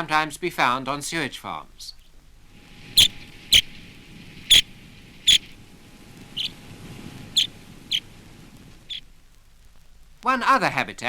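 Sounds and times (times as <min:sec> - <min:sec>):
sandpiper short sharp calls: 0:02.8 - 0:05.6, 0:06.3 - 0:06.6, 0:07.2 - 0:08.1, 0:08.8 - 0:09.1.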